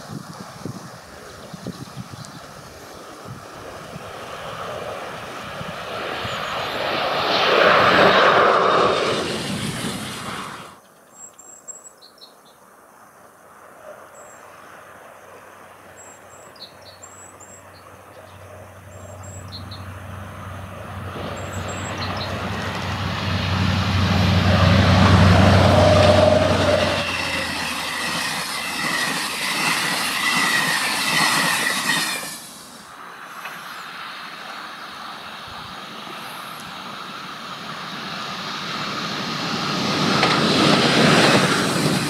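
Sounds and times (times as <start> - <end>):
diesel locomotive engine hum: 0.0 - 10.8, 14.8 - 42.0
train wheels rumbling on rails: 18.8 - 42.0
faint wheel squeal: 25.6 - 32.8.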